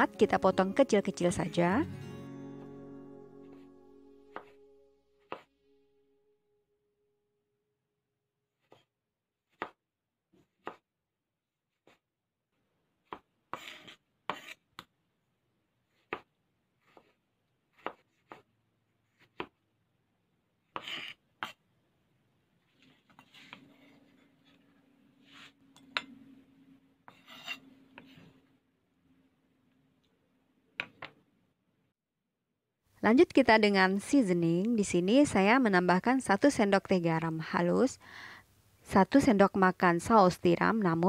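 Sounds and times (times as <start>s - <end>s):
knife chopping on wooden board: 4.3s - 4.6s, 5.3s - 5.5s, 9.5s - 9.8s, 10.4s - 10.8s, 16.0s - 16.3s, 17.7s - 18.5s, 19.2s - 19.6s
knife scraping and tapping: 13.6s - 14.9s, 27.1s - 28.3s.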